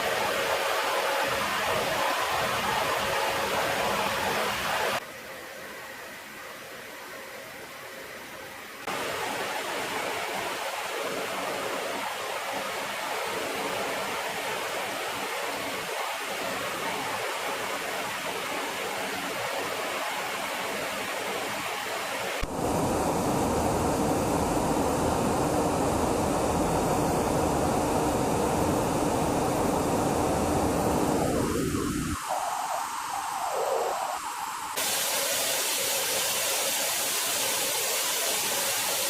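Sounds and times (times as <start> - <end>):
faint steady tones: 22.3 - 34.8
jet engines rushing: 22.4 - 37.2.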